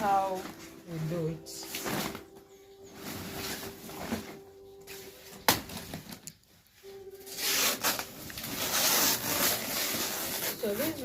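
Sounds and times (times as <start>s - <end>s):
banana leaves rustling: 7.2s - 11.0s.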